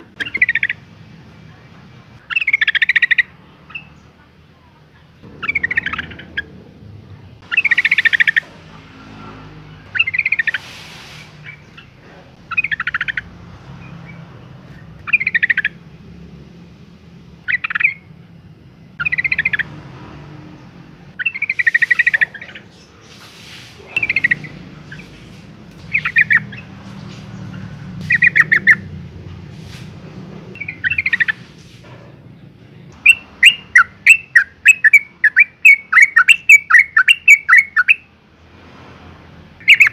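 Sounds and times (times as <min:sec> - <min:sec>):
bulbul chattering calls: 0:00.0 - 0:00.8, 0:02.2 - 0:04.2, 0:05.3 - 0:06.6, 0:07.4 - 0:08.8, 0:09.8 - 0:15.9, 0:17.4 - 0:18.1, 0:19.0 - 0:19.8, 0:21.1 - 0:29.0, 0:30.6 - 0:31.6, 0:33.0 - 0:38.1, 0:39.6 - 0:39.9.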